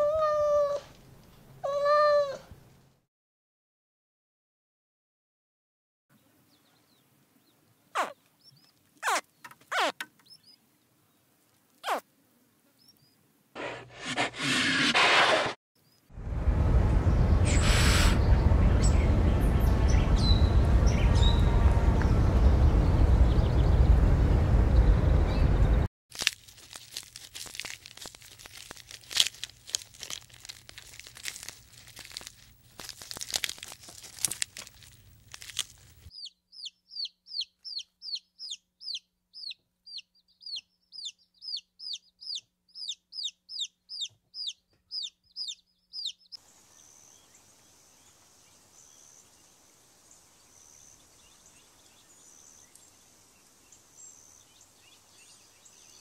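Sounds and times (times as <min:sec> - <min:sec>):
bird calling descending notes: 0:16.8 - 0:24.1.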